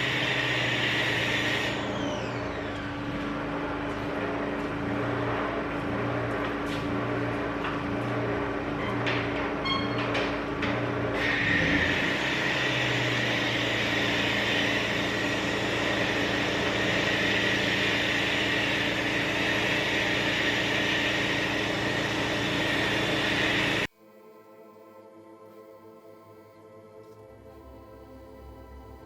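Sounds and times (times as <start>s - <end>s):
hissing water spray: 0.0s - 1.8s, 11.2s - 23.9s
pressure washer running: 0.0s - 23.9s.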